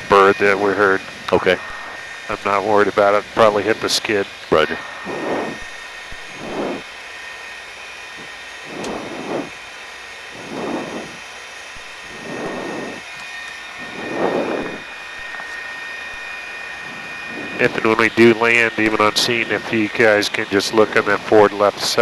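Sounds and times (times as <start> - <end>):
helicopter turbine whine: 0.0 - 22.0
breathing on headset microphone: 4.7 - 6.9, 8.6 - 9.6, 10.4 - 11.2, 11.8 - 13.1, 13.8 - 15.5, 16.1 - 18.2.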